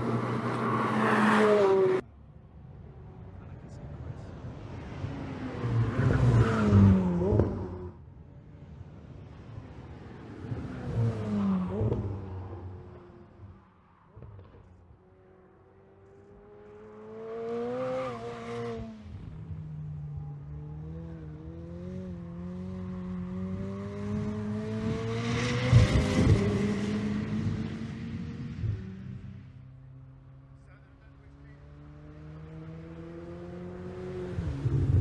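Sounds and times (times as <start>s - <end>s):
sports car engine revving: 30.5s - 35.0s.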